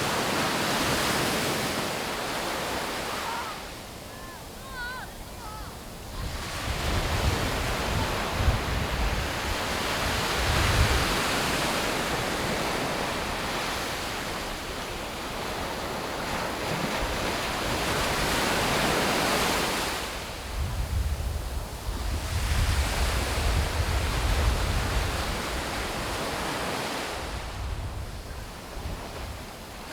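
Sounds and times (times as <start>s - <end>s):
sea waves breaking on beach: 0.0s - 29.9s
wind rumble on microphone: 5.2s - 14.7s, 19.9s - 26.6s, 27.2s - 29.8s.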